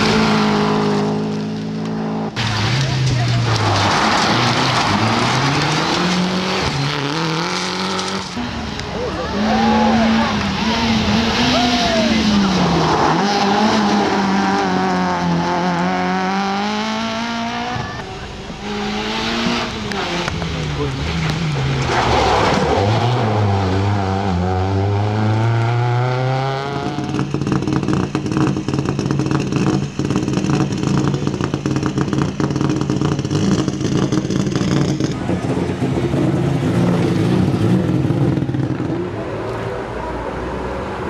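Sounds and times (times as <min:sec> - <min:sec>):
rally car engine revving: 0:00.0 - 0:41.0
engines idling: 0:17.6 - 0:22.8, 0:26.9 - 0:41.0.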